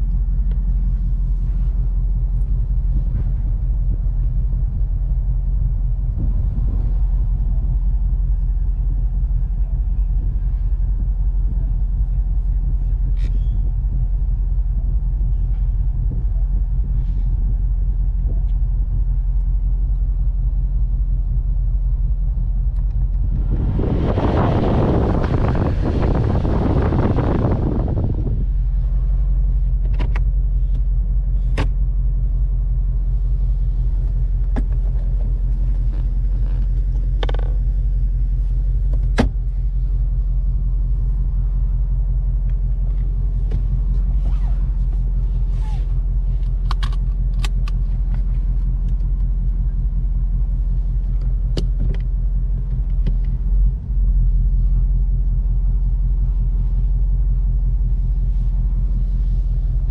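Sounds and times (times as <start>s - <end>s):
car engine idling: 0.0s - 59.9s
clicks and knocks of car interior: 29.8s - 30.8s, 31.4s - 31.8s, 34.3s - 37.8s, 38.8s - 39.6s, 42.8s - 44.7s, 51.1s - 53.4s.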